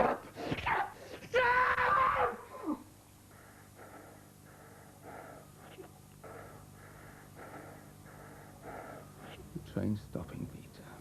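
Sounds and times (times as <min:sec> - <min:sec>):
faint electrical hum: 0:00.0 - 0:11.0
man panting heavily: 0:03.3 - 0:09.6.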